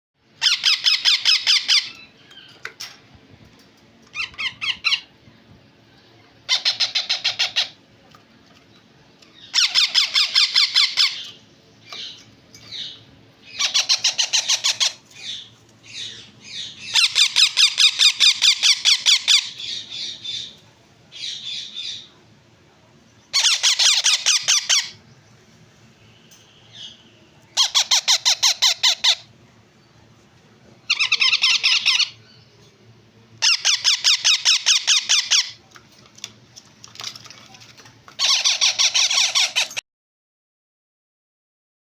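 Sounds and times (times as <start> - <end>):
parakeet chicks squawking: 0.4 - 2.6, 4.1 - 5.2, 6.4 - 7.8, 9.3 - 22.1, 23.3 - 25.0, 26.6 - 29.3, 30.9 - 32.2, 33.4 - 35.6, 38.1 - 39.8.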